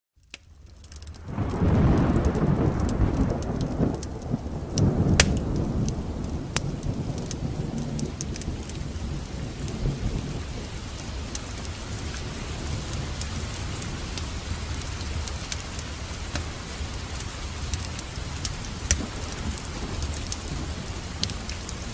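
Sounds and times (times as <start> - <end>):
heavy rain: 0.5 - 21.9
thunder rolling: 1.2 - 21.9.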